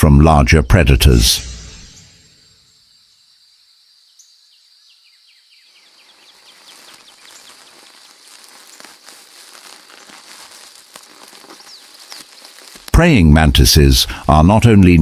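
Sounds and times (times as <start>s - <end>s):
insects trilling: 0.8s - 14.8s
pattering hiss of ticks: 5.7s - 14.4s.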